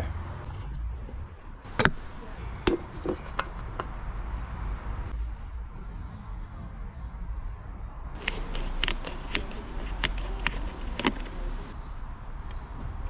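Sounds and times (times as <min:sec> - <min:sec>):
oil pouring from plastic bottle: 0:08.2 - 0:11.7.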